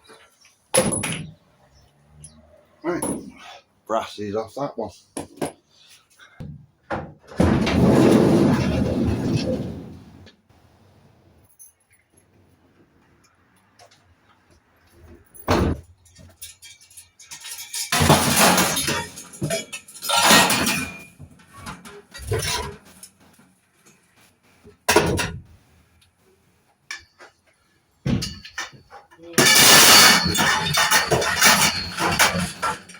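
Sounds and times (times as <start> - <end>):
metal parts clanking and rattling: 0.8 - 1.4, 15.3 - 23.3, 28.1 - 32.9
metal clattering and scraping: 7.3 - 10.3, 15.0 - 24.0, 28.1 - 32.9.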